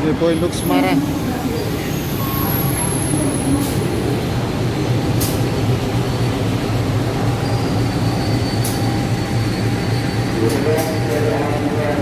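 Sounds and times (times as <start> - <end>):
train rumbling on rails: 0.0 - 12.0
train wheel squeal: 1.0 - 3.8, 7.2 - 11.4.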